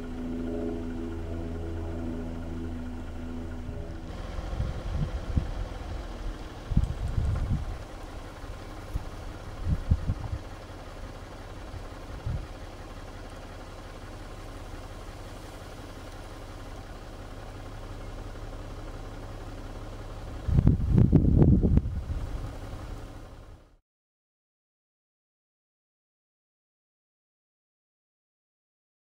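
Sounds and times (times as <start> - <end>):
vehicle engine idling: 0.0 - 23.8
wind buffeting microphone: 4.1 - 10.6, 12.0 - 12.6, 20.3 - 22.7.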